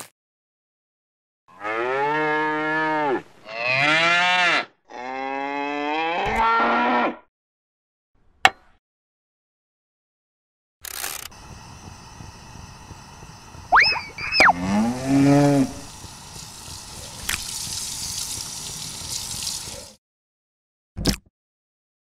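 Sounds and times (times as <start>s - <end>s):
cattle mooing: 1.5s - 7.2s, 14.3s - 15.9s.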